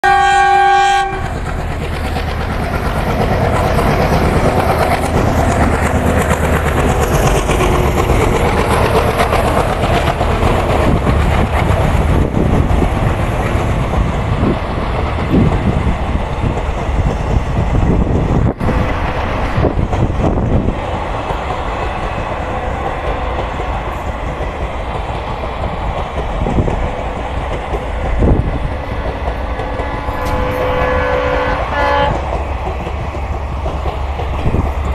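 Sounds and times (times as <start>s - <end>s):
train horn: 0.0s - 1.4s, 29.6s - 32.4s
train wheels rumbling on rails: 0.0s - 34.9s.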